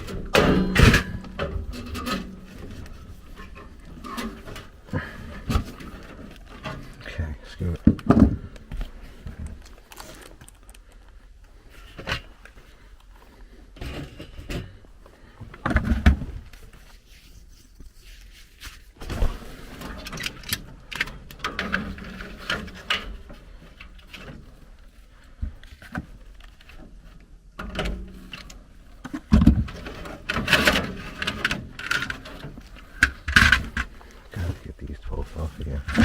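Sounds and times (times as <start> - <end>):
hands clicking and rattling wiring: 7.7 - 11.2, 25.6 - 34.6.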